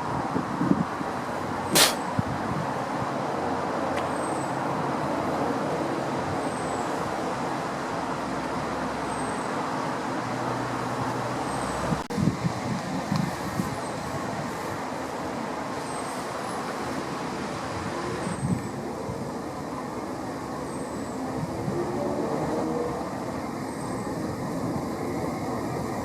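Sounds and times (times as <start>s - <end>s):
sharp click: 1.8s - 2.0s
passing vehicle rumble: 21.0s - 26.0s.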